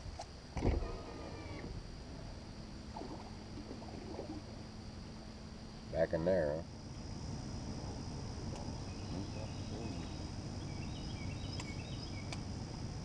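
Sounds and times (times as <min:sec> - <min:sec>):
steady low hum: 0:00.0 - 0:13.0
songbird chirping: 0:06.9 - 0:12.7
sharp clicks: 0:11.5 - 0:12.5.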